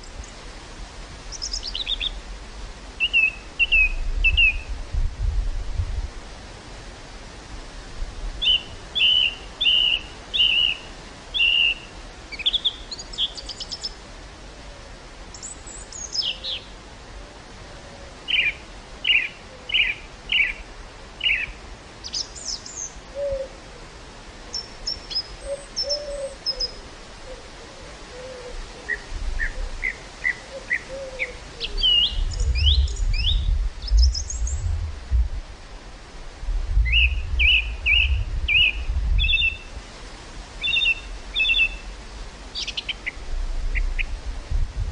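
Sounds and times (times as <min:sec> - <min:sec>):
songbirds singing: 0:01.3 - 0:02.2, 0:03.0 - 0:04.8, 0:08.4 - 0:14.0, 0:15.3 - 0:16.8, 0:18.1 - 0:23.6, 0:24.4 - 0:34.8, 0:36.8 - 0:39.8, 0:40.6 - 0:44.2
wind buffeting microphone: 0:03.6 - 0:06.6, 0:31.6 - 0:40.5, 0:43.2 - 0:44.9.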